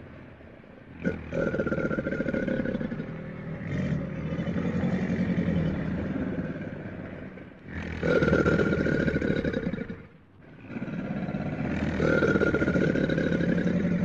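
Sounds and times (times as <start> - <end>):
crocodile growling: 0.9 - 14.0.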